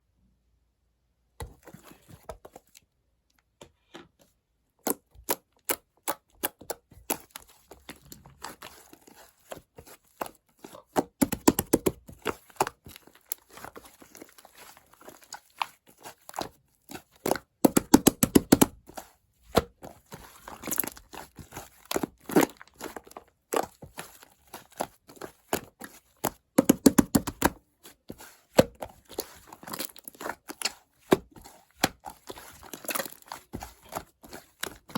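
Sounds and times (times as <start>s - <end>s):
slime kneaded by hand popping: 17.2s - 18.8s, 25.4s - 27.6s.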